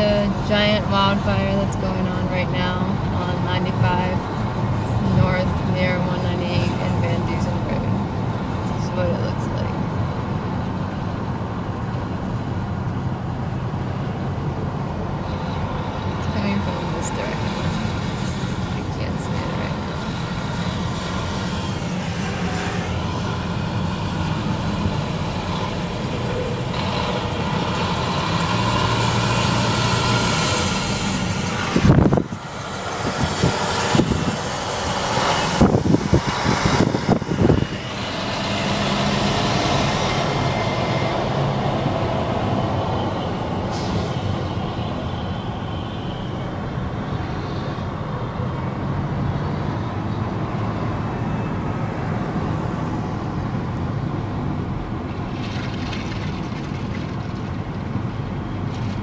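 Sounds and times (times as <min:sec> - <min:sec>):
car engine and road noise: 0:00.0 - 0:59.0
wind buffeting: 0:16.9 - 0:45.9.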